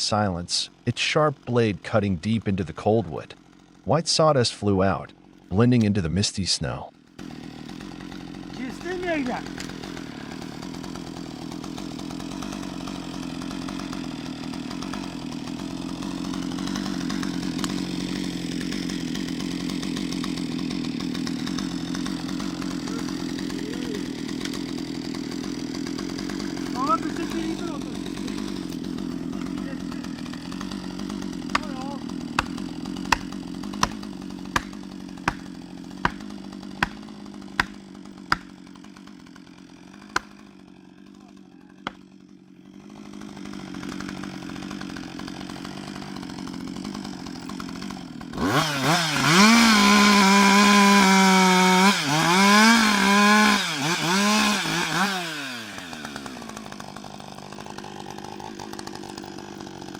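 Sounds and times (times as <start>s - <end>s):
chainsaw cutting wood: 0.0s - 59.9s
chainsaw idling: 0.0s - 59.9s
sharp knocks: 36.0s - 37.0s.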